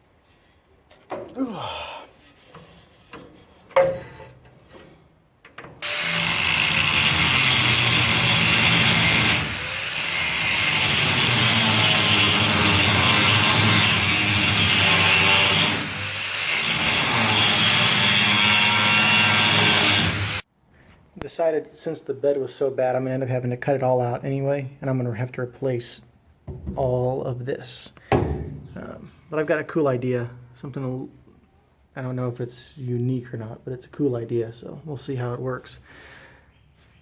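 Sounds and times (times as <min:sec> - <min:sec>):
angle grinder grinding metal: 0:05.8 - 0:20.4.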